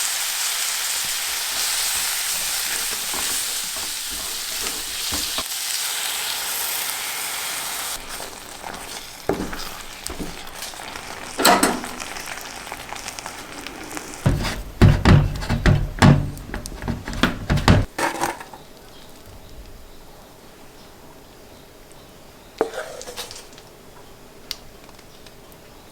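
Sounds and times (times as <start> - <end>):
food sizzling in a pan: 0.0 - 17.9
knocks: 14.3 - 17.9
heavy thuds and clatter: 14.3 - 18.0.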